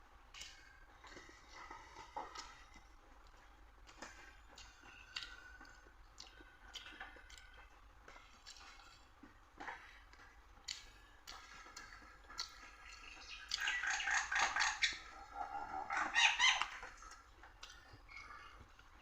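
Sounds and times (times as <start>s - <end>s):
soft eating clicks: 0.2s - 19.0s
bird calling in quick notes: 13.2s - 16.8s.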